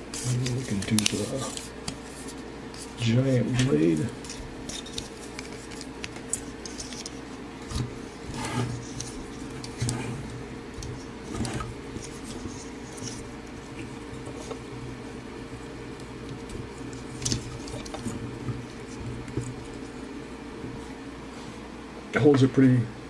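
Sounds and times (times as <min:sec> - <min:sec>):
plastic rubbing scrapes: 0:04.2 - 0:20.9.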